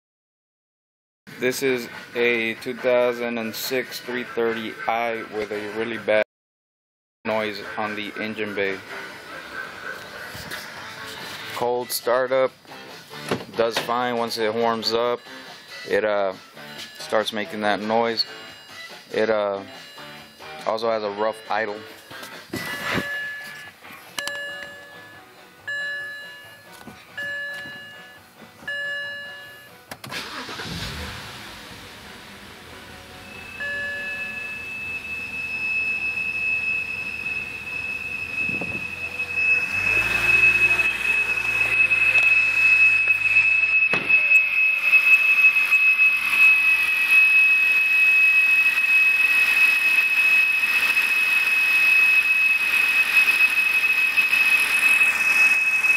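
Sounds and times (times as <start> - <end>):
car chime: 21.5 - 30.6, 33.1 - 45.6
car engine starting and running: 28.7 - 55.9
high-pitched engine whine: 30.2 - 55.9.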